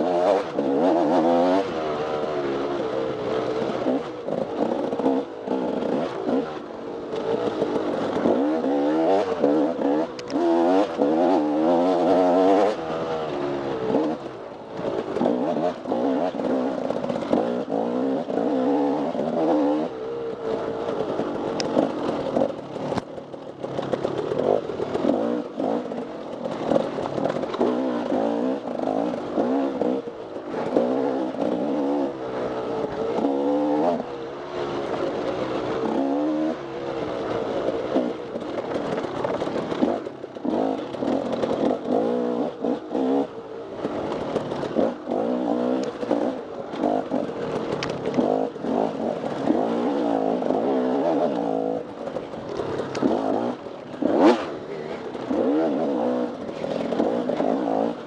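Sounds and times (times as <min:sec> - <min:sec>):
dirt bike engine revving: 0:00.0 - 0:23.0, 0:23.7 - 0:58.0
knocks and clatter: 0:13.8 - 0:32.0, 0:32.6 - 0:58.0.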